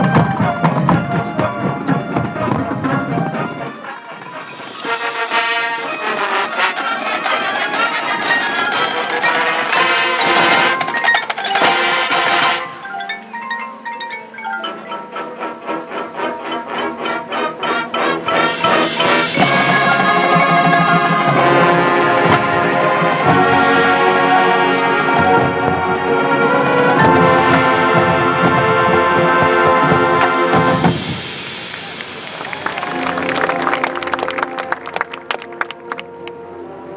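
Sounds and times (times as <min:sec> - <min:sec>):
marching band music: 0:00.0 - 0:36.6
mallet percussion: 0:04.1 - 0:22.2.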